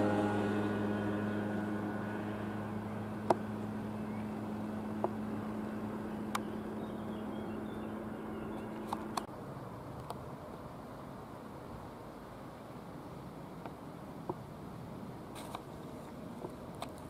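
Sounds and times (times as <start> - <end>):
electric train humming: 0.0 - 6.9.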